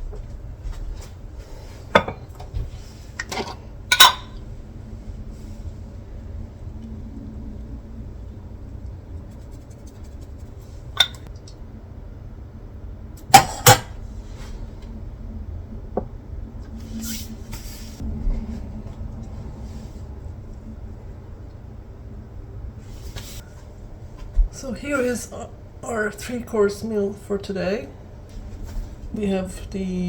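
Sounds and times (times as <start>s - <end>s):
low steady hum: 0.0s - 30.0s
kitchenware scraping: 1.8s - 2.6s, 3.2s - 4.4s, 13.3s - 14.0s
kitchenware clinks and knocks: 2.0s - 2.4s, 3.3s - 4.4s.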